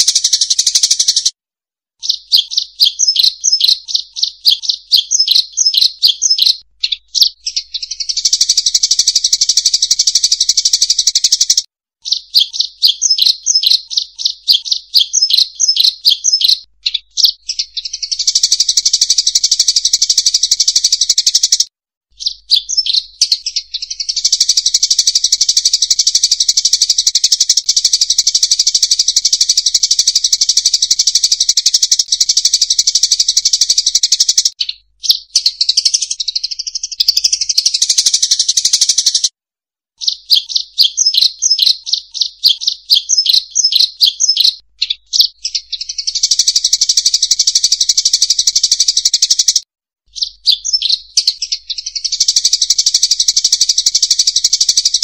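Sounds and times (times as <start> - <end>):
dense bird twittering: 0.0 - 1.3, 2.0 - 21.6, 22.2 - 39.3, 40.0 - 49.6, 50.2 - 55.0
high fast bird chirping: 0.0 - 1.3, 2.0 - 39.3, 40.0 - 55.0.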